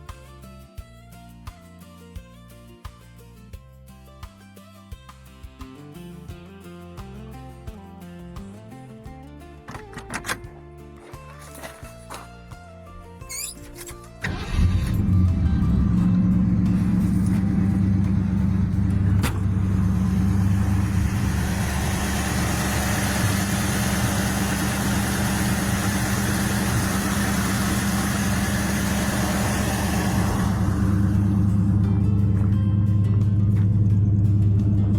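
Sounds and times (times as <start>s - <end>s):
car engine rumbling: 9.6s - 34.9s.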